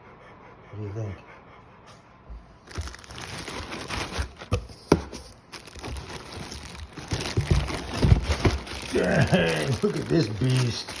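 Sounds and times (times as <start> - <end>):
crinkling plastic and cardboard: 2.6 - 11.0.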